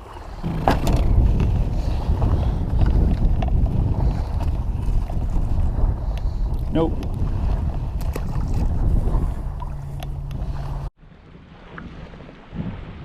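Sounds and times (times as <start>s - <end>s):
wind buffeting microphone: 0.0s - 13.0s
knock: 0.5s - 1.1s.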